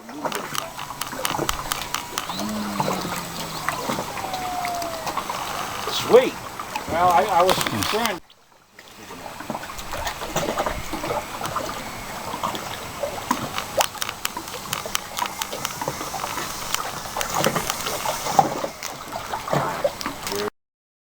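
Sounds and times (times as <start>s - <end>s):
small sharp clicks and knocks: 0.2s - 5.8s, 13.3s - 19.1s.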